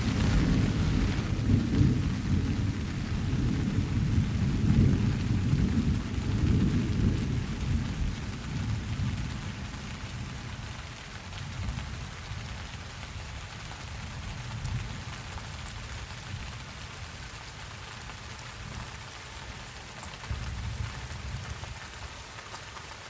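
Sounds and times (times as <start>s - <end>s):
thunder rumbling: 0.0s - 10.6s
steady rain: 0.0s - 23.0s.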